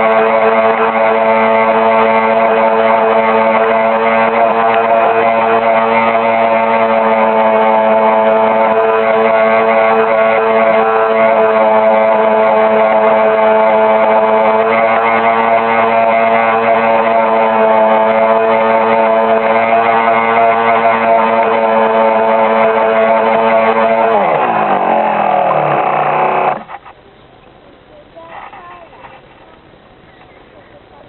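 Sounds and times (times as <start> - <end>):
motorboat motor running: 0.0 - 27.0.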